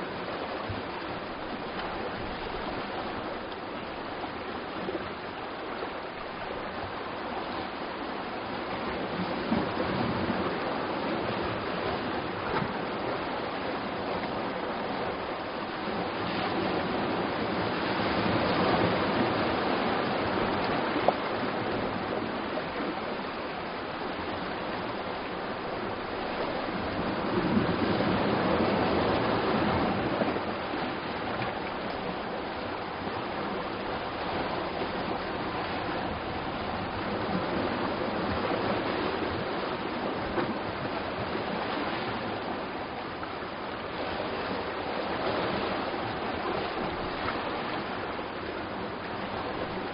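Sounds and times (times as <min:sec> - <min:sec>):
surf on rocky shore: 0:00.0 - 0:49.9.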